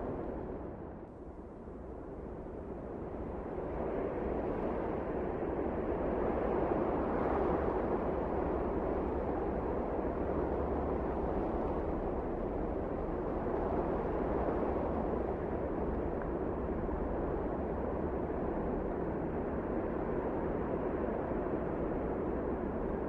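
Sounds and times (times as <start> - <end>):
wind blowing steadily: 0.0 - 23.0.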